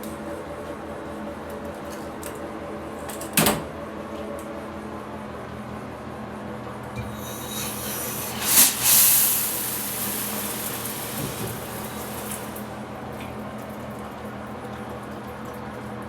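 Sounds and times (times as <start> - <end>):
shower head spraying water: 7.0 - 12.8.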